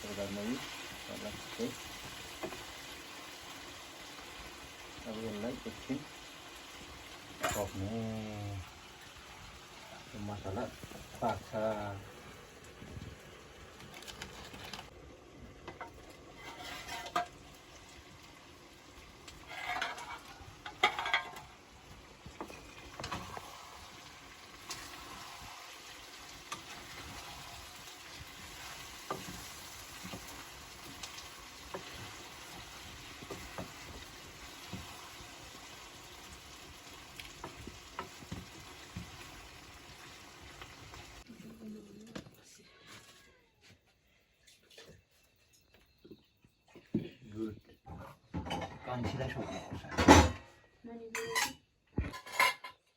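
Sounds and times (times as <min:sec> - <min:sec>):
food sizzling in a pan: 0:00.0 - 0:42.2
spoon scraping a pan: 0:15.7 - 0:17.4, 0:19.3 - 0:21.5, 0:51.1 - 0:52.9.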